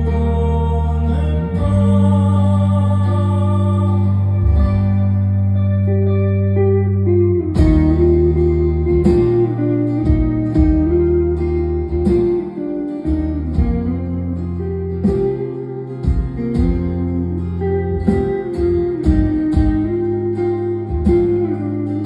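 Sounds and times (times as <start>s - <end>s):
live rock band playing: 4.0s - 22.0s
drum hits: 7.6s - 8.2s, 10.1s - 11.1s, 16.0s - 17.0s.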